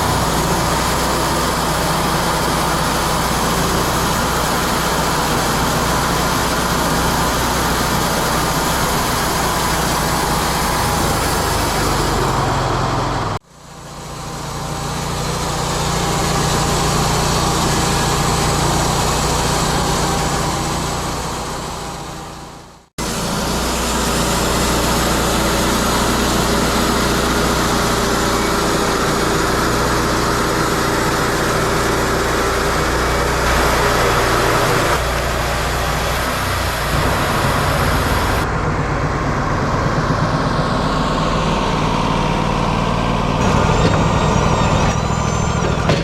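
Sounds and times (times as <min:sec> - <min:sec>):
sawmill engine drone: 0:00.0 - 0:46.0.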